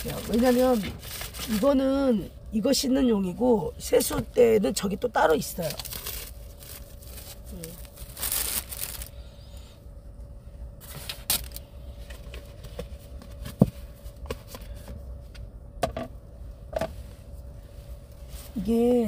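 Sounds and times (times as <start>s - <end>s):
cabbage leaves rustling: 0.0s - 2.0s, 5.3s - 9.1s
faint steady hum: 0.0s - 19.0s.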